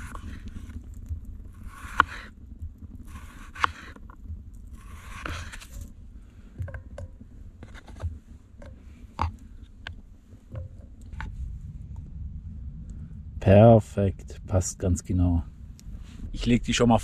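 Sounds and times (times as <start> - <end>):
knife slicing raw potatoes: 0.0 - 0.8, 1.5 - 2.3, 3.0 - 4.1, 4.7 - 5.9.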